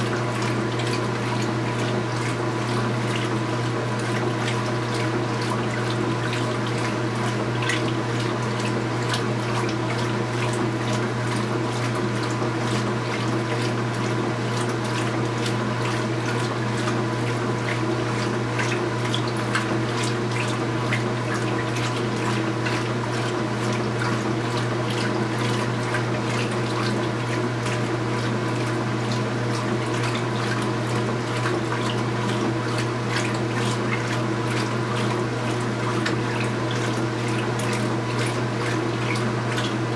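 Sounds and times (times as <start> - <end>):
washing machine humming: 0.0 - 39.9
water sloshing and splashing: 0.0 - 39.9.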